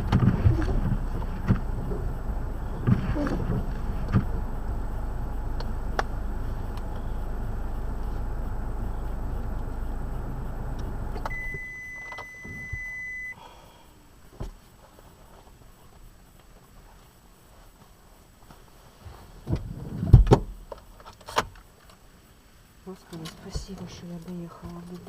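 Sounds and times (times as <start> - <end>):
car engine running: 0.0 - 13.4
electronic warning tone: 6.2 - 13.4.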